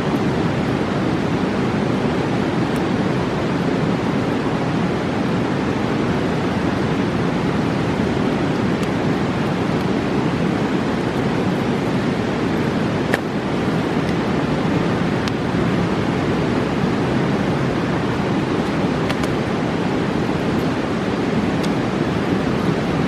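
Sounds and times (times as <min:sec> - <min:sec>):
river rushing: 0:00.0 - 0:23.0
campfire popping: 0:08.0 - 0:15.9, 0:18.0 - 0:22.9.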